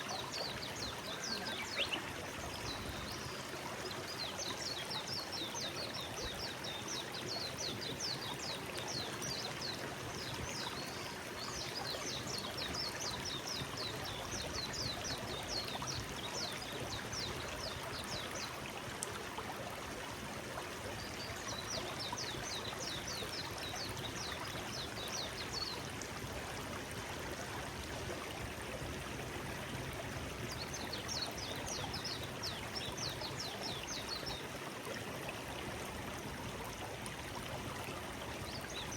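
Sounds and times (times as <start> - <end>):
stream flowing: 0.0 - 38.9
small bird singing: 0.4 - 2.1.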